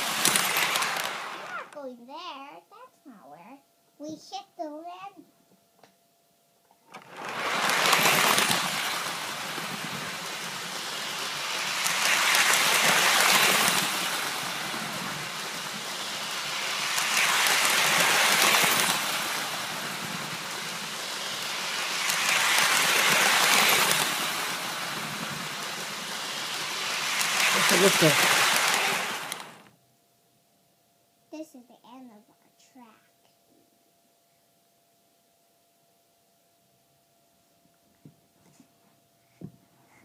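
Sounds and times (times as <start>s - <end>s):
toy train whirring rumble: 0.0s - 1.9s, 6.9s - 29.7s.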